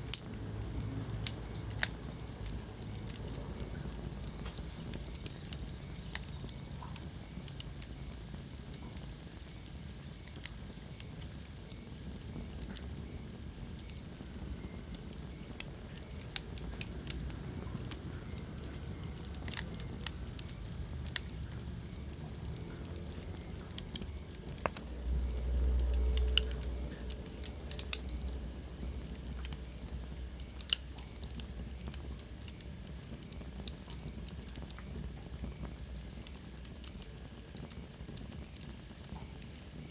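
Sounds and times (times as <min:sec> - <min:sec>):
low fire rumble: 0:00.0 - 0:39.9
wood fire crackling and popping: 0:00.0 - 0:39.9.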